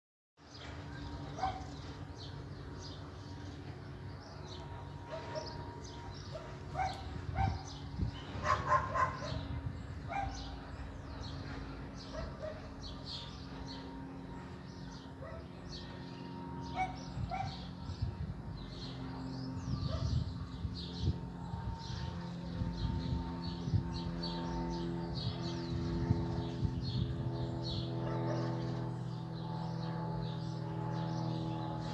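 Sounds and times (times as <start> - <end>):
birds chirping: 0.4 - 31.9
steady low drone: 0.4 - 31.9
dog barking: 1.4 - 1.7, 6.4 - 7.6, 8.4 - 9.4, 10.1 - 10.4, 12.1 - 12.7.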